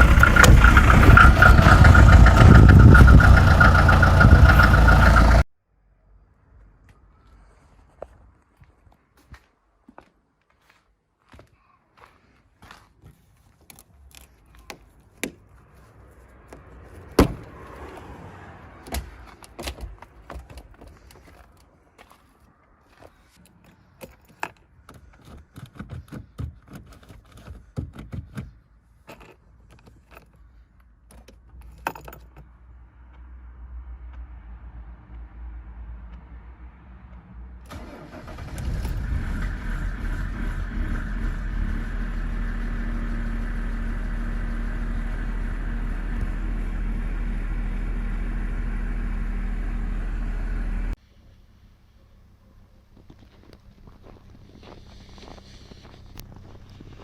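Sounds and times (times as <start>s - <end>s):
diesel engine starting and running: 0.0s - 5.5s, 14.6s - 22.1s, 37.5s - 57.0s.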